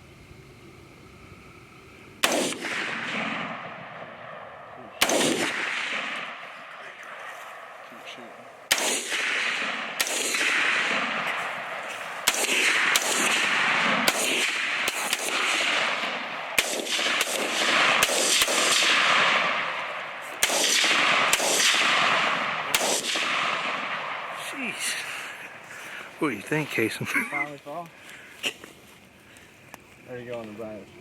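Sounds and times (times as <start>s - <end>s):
rifle shots with echo: 2.2s - 24.7s.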